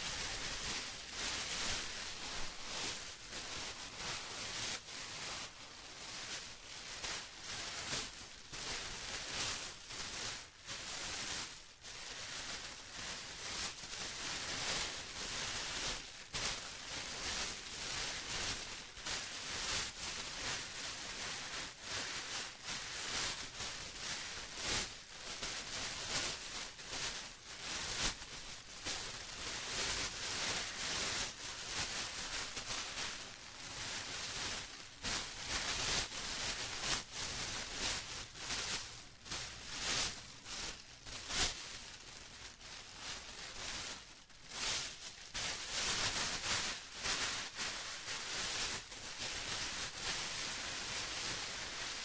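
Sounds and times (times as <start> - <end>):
plastic crinkling: 0.0 - 8.6, 20.4 - 52.0.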